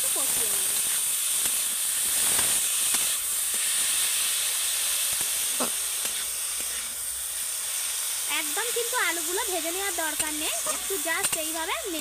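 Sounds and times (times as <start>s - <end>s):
potato sizzling in oil: 0.0s - 12.0s.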